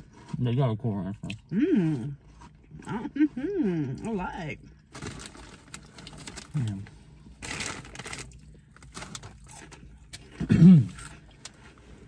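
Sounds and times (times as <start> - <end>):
snack bag crinkling: 4.9 - 11.6
crunchy snack chewing: 7.4 - 11.6.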